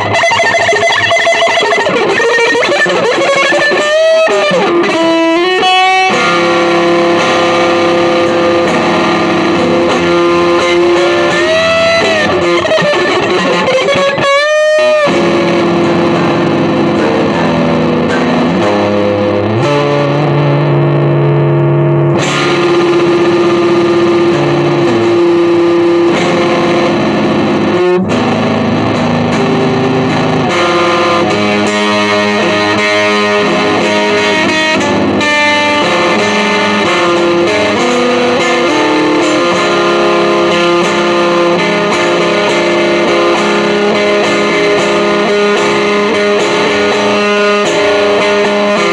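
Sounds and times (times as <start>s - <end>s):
distorted electric guitar: 0.0s - 48.9s.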